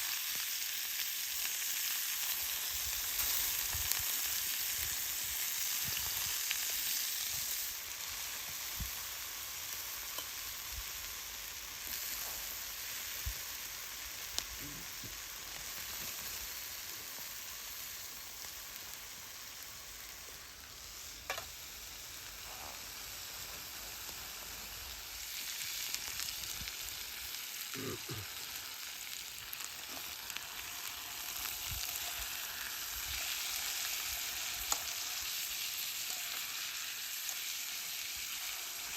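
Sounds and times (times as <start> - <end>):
food sizzling in a pan: 0.0 - 38.9
small pops and crackles: 21.2 - 21.5, 34.1 - 35.0.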